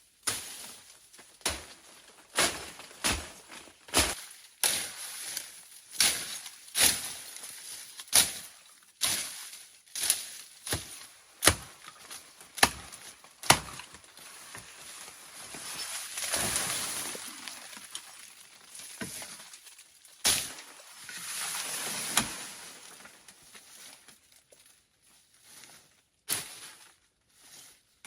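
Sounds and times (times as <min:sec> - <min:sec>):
blade chopping: 0:12.6 - 0:13.9.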